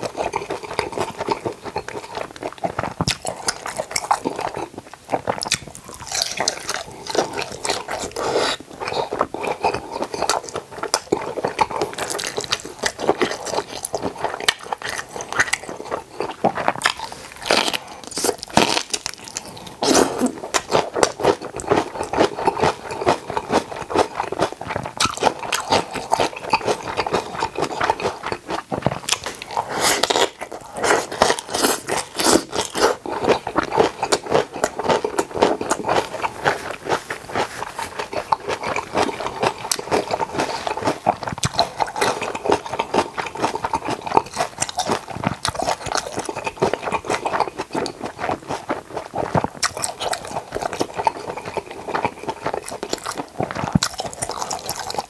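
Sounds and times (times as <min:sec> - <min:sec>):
wet chewing: 0:00.0 - 0:55.0
crisp crunching: 0:24.2 - 0:55.0.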